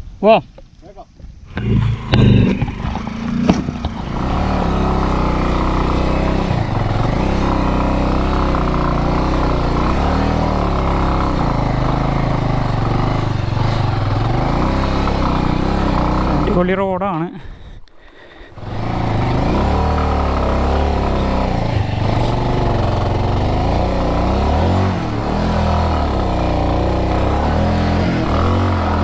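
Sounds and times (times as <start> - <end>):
motorcycle engine: 1.5 - 17.0, 17.6 - 29.0.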